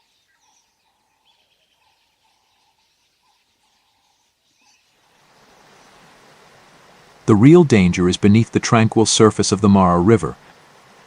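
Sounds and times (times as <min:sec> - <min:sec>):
faint low bird call: 0:00.0 - 0:04.9.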